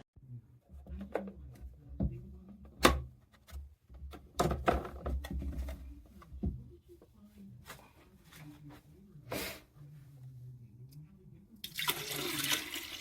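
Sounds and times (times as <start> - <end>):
hard objects knocking and clunking: 0.7 - 6.7.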